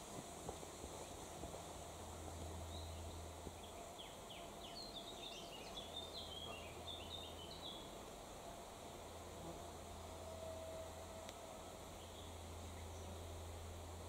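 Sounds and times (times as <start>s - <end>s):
faint low hum: 0.0s - 14.0s
songbird chirping: 2.4s - 8.1s.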